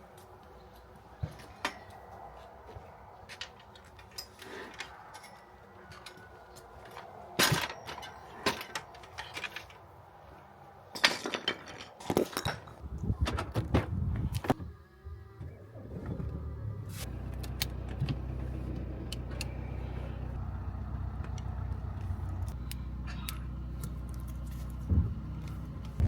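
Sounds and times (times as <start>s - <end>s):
tools clinking and knocking: 1.2s - 2.2s, 3.2s - 9.9s, 10.9s - 12.8s.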